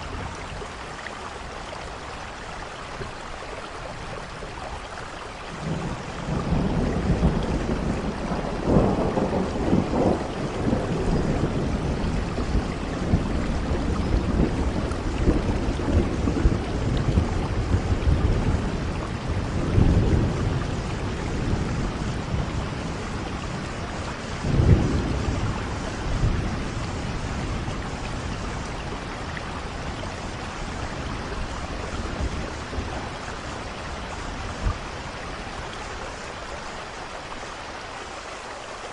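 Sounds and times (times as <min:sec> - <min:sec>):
rain falling: 0:00.0 - 0:38.9
thunder rolling: 0:05.6 - 0:34.8.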